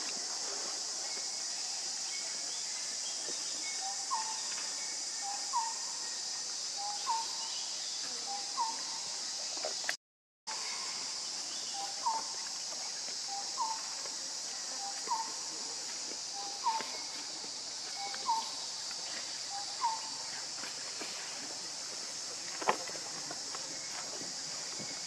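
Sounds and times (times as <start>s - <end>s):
steady high hiss: 0.0s - 25.0s
bird calling: 6.8s - 7.4s, 16.4s - 17.1s, 17.9s - 18.7s, 19.4s - 20.4s.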